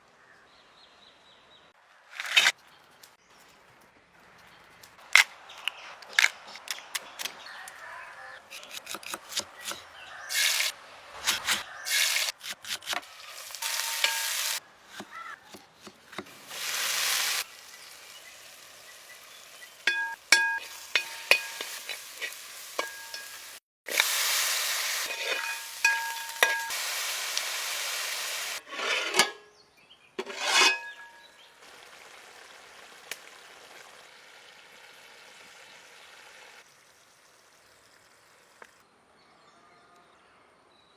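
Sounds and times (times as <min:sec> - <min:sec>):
fish sizzling in a pan: 0:10.3 - 0:10.7, 0:11.9 - 0:12.4, 0:13.0 - 0:14.6, 0:16.3 - 0:28.6, 0:31.6 - 0:38.4
metal spoon clinking on pan: 0:13.6 - 0:14.6, 0:19.8 - 0:24.1, 0:25.0 - 0:27.1, 0:30.2 - 0:31.4.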